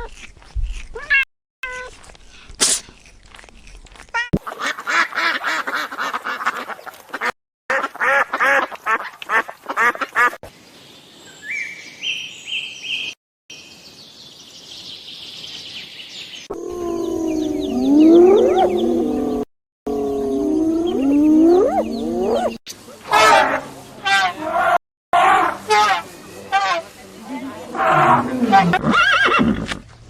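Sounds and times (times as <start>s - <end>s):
ducks quacking: 4.4s - 10.4s
high chirping calls: 14.9s - 22.6s.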